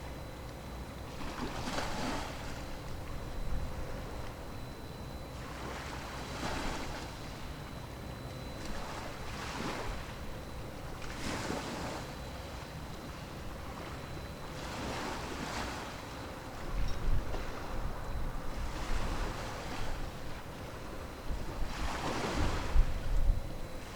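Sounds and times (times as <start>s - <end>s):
wind rumble on microphone: 16.6s - 23.9s.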